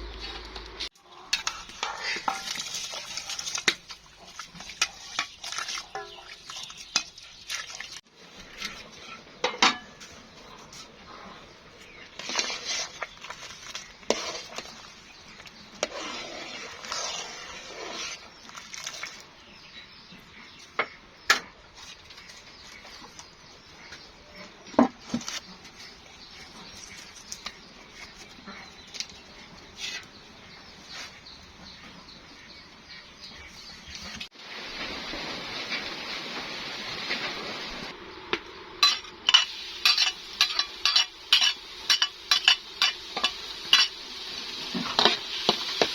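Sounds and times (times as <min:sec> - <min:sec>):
food sizzling in a pan: 0:01.3 - 0:08.0, 0:34.3 - 0:45.9.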